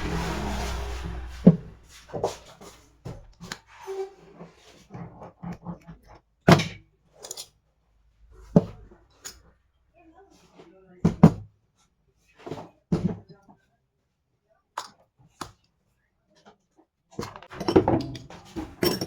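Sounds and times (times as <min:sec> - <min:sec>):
engine hum: 0:00.0 - 0:02.5.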